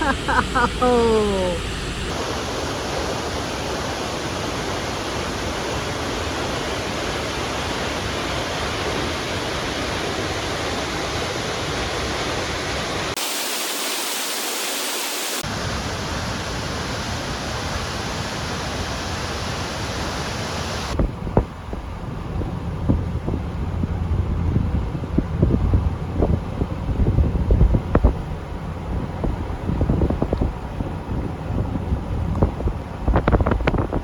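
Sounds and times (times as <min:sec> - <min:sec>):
waterfall rushing: 0:13.2 - 0:15.8.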